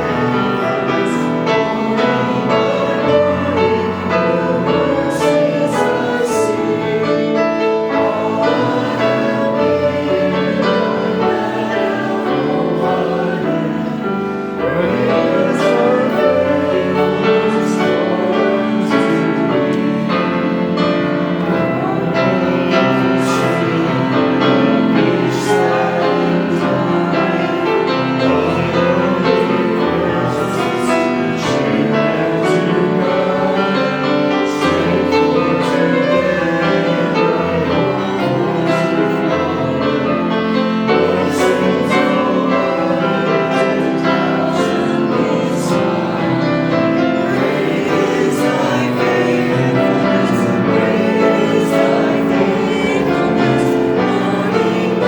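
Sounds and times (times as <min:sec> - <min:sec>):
group of voices singing: 0:00.0 - 0:55.0
piano accompaniment: 0:00.0 - 0:55.0.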